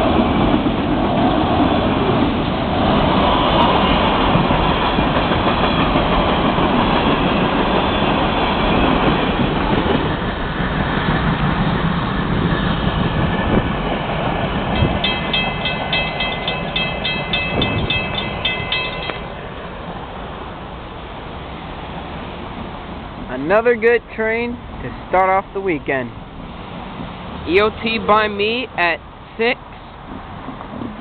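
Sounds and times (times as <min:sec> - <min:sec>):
freight train rolling over rails: 0:00.0 - 0:31.0
crossing bell ringing: 0:14.7 - 0:19.5.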